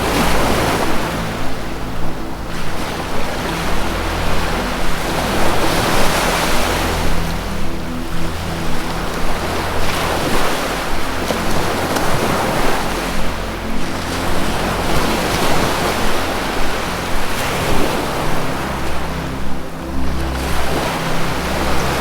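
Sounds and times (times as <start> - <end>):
low musical drone: 0.0 - 22.0
ocean surf washing: 0.0 - 22.0.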